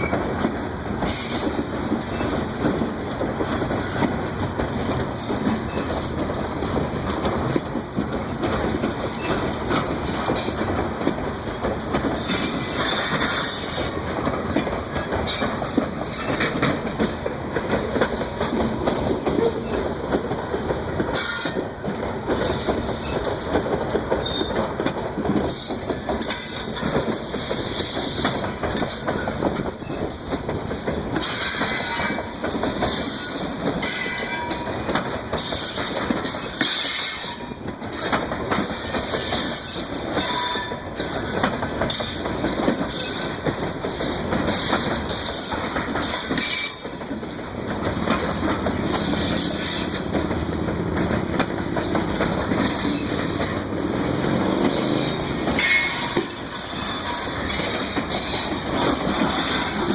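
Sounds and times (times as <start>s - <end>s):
wheels clicking over rail joints: 0.0s - 59.9s
wheel squeal: 3.4s - 4.0s.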